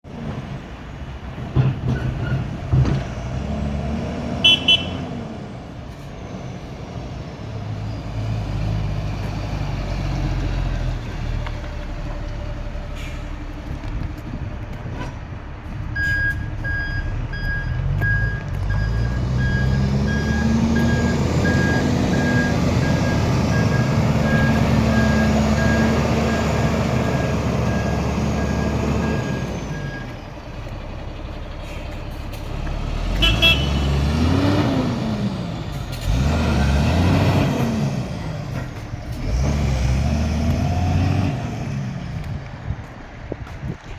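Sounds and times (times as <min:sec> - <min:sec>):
truck diesel engine: 0:00.0 - 0:43.9
truck horn toot: 0:04.4 - 0:05.1, 0:33.2 - 0:33.9.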